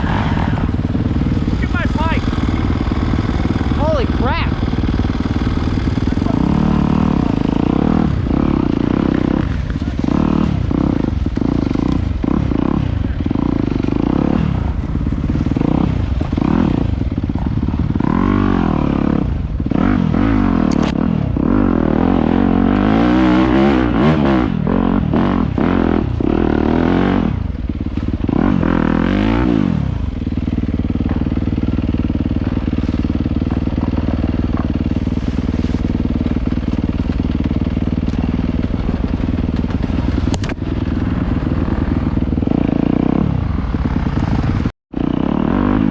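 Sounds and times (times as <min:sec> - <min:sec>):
dirt bike engine revving and idling: 0:00.0 - 0:45.9.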